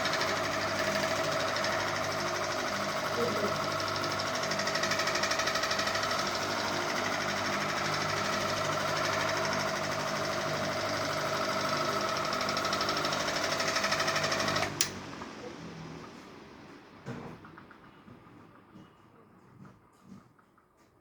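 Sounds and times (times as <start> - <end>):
fan switch click: 14.6 - 15.0.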